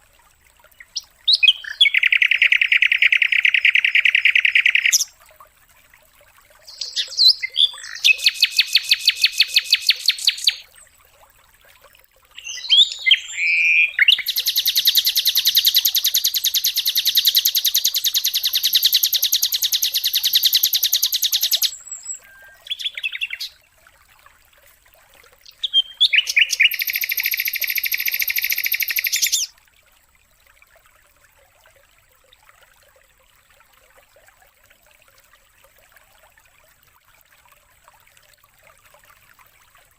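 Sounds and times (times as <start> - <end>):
bird trilling song: 0.8 - 5.1, 6.7 - 10.6, 12.4 - 23.6, 25.4 - 29.5.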